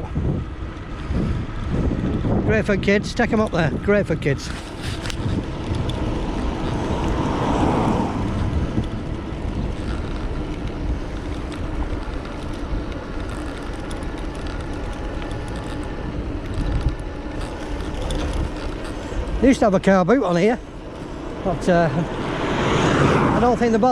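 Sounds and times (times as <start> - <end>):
rush of wind: 0.0 - 23.9
wind rumbling on microphone: 0.0 - 23.9.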